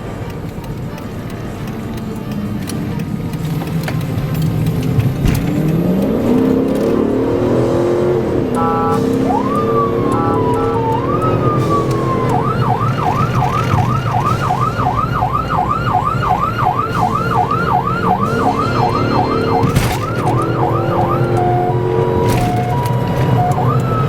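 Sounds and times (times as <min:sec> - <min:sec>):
engine and road rumble: 0:00.0 - 0:24.0
police siren wailing and yelping: 0:05.3 - 0:24.0.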